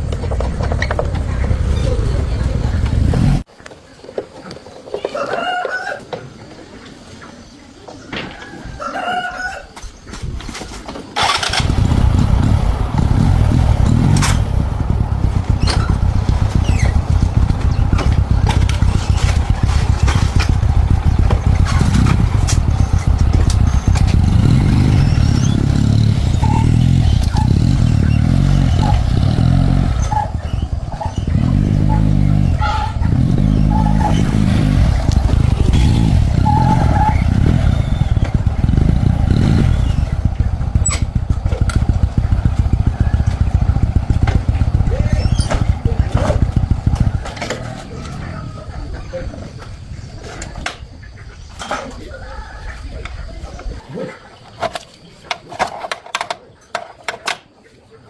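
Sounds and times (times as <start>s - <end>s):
motorcycle engine starting and running: 0.0s - 3.5s, 11.0s - 51.7s.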